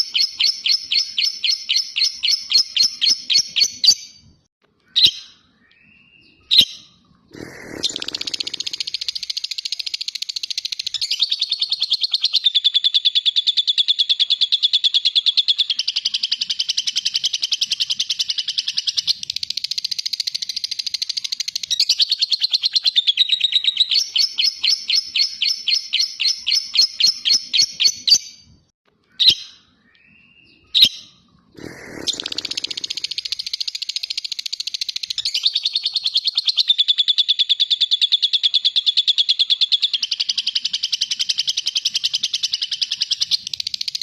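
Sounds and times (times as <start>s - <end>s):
lovebird chattering trill: 6.5s - 28.2s, 31.6s - 44.0s.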